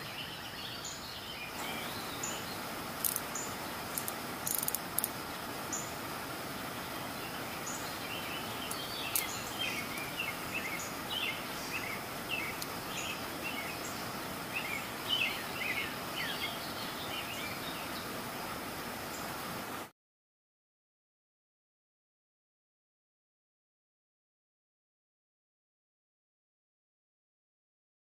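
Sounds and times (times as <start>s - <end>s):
small birds chirping: 0.0s - 19.9s
steady background hiss: 0.0s - 19.9s.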